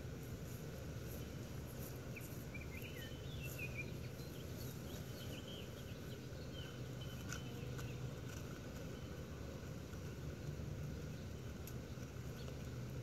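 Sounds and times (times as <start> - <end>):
songbird chirping: 1.0 - 10.2.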